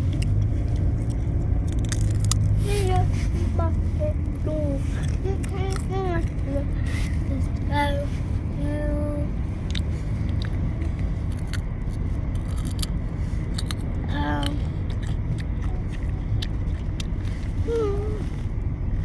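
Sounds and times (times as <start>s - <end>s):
low rumble: 0.0s - 19.0s
child's vocal sound: 2.6s - 9.3s, 14.1s - 14.7s, 17.6s - 18.5s.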